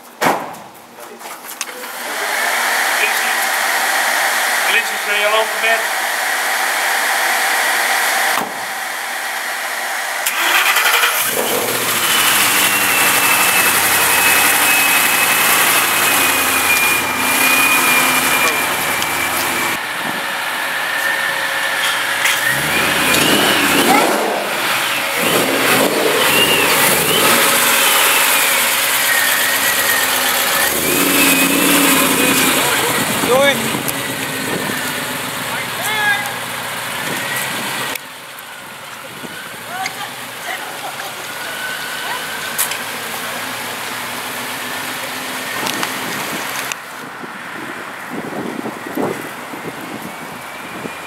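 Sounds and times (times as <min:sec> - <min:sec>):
car engine pulling away: 0:01.9 - 0:51.0
supercharger whine: 0:02.0 - 0:39.8.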